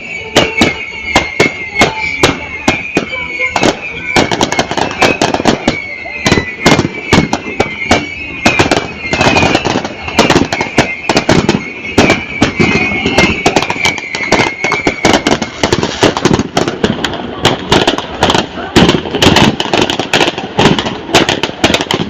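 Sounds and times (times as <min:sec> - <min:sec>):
high falling whistle: 0:00.0 - 0:16.2
fireworks bangs and crackles: 0:00.0 - 0:22.0.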